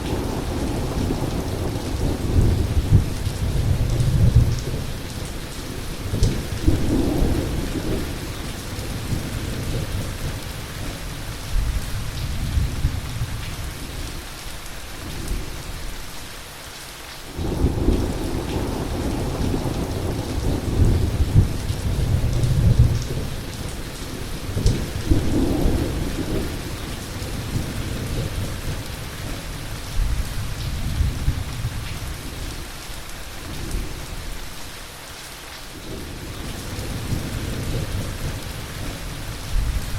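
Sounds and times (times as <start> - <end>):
rolling thunder: 0.0 - 11.0, 17.4 - 32.5, 35.8 - 39.9
rain hissing: 0.0 - 39.9.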